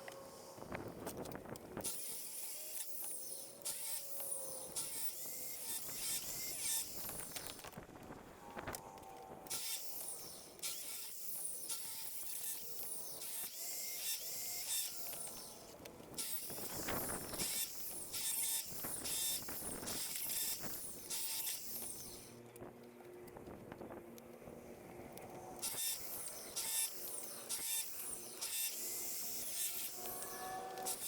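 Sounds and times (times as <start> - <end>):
hand saw cutting wood: 9.5 - 22.3, 25.6 - 31.0.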